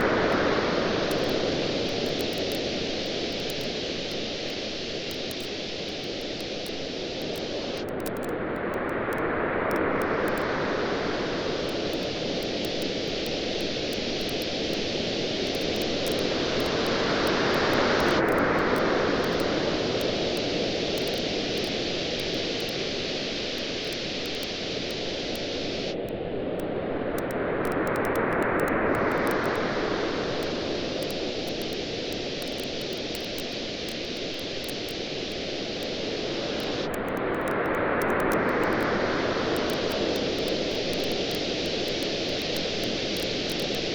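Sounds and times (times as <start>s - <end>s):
ocean waves washing ashore: 0.0s - 7.8s, 8.6s - 43.9s
hiss of surf: 0.0s - 43.9s
campfire crackling: 1.0s - 8.2s, 11.4s - 26.0s, 30.4s - 38.9s, 39.6s - 43.9s.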